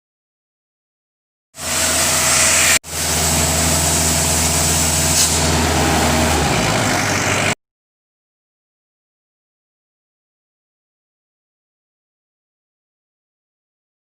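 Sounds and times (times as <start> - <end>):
generator engine running: 1.6 - 7.6.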